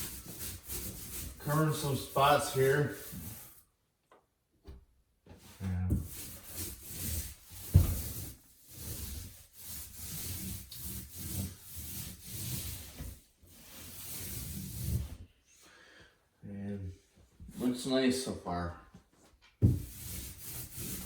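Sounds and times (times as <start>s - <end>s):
paint roller rubbing on wall: 0.0s - 3.6s, 5.9s - 15.3s, 19.6s - 21.0s.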